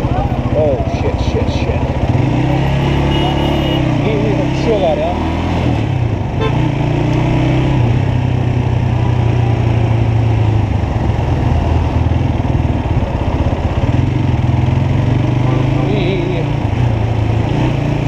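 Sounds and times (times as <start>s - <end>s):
motorcycle engine idling: 0.0s - 2.2s.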